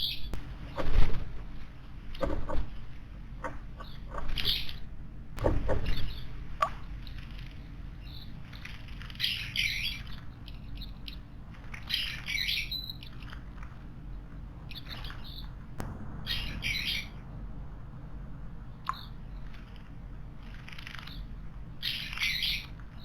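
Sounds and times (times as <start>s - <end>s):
wild birds calling: 3.3s - 13.3s, 16.2s - 17.3s, 20.6s - 23.0s.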